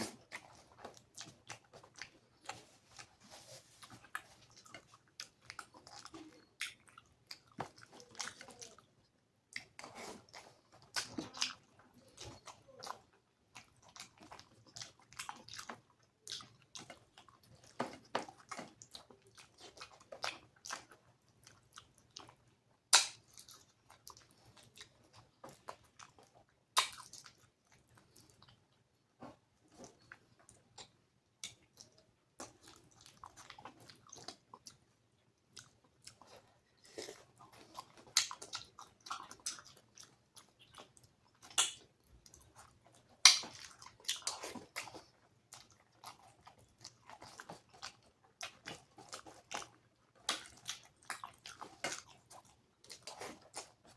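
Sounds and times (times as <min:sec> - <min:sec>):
person chewing food: 0:00.0 - 0:53.9
wet mouth clicks and smacks: 0:22.9 - 0:23.3, 0:43.2 - 0:44.9, 0:49.5 - 0:52.0.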